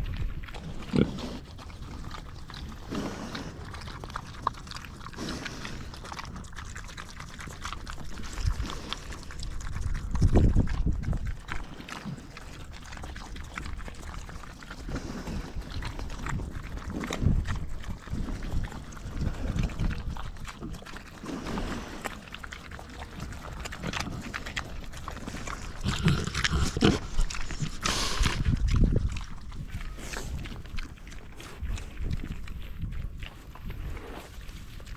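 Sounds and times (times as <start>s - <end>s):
pigs munching grain: 0.0s - 34.9s
pigs snuffling: 0.0s - 34.9s.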